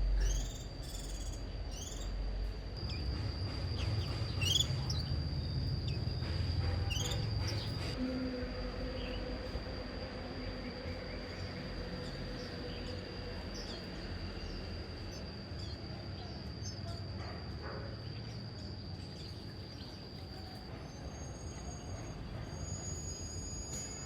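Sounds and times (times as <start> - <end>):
high-pitched insect drone: 0.0 - 24.0.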